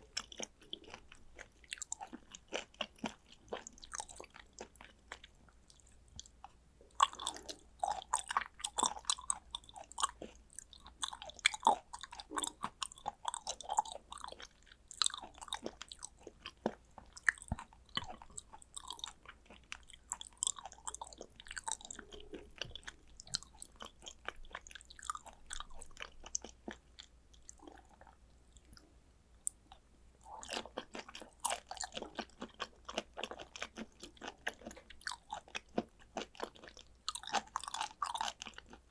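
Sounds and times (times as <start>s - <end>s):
person chewing wetly: 0.0s - 38.9s.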